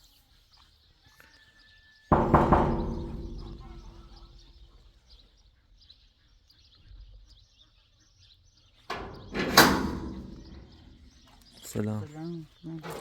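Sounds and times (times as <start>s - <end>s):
faint birdsong: 0.0s - 13.0s
door scraping open: 8.9s - 11.4s.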